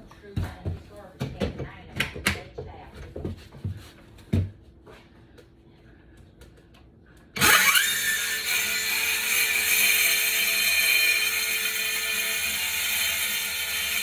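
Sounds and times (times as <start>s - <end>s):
circular saw cutting wood: 7.4s - 14.0s.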